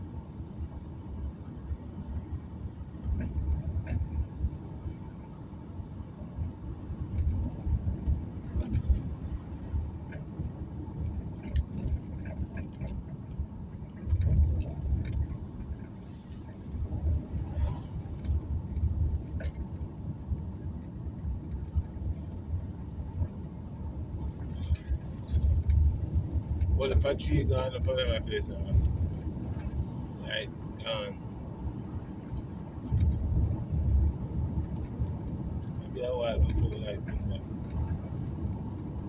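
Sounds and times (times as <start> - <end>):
car engine and tyres rumbling: 0.0 - 39.0
light clicks and rattles: 7.0 - 20.1, 24.1 - 31.0, 32.2 - 39.0.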